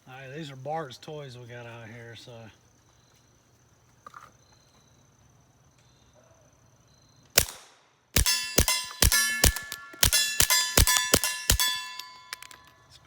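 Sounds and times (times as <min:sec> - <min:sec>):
suppressed gunshots: 0:07.4 - 0:12.5
steel targets ringing: 0:08.2 - 0:12.9.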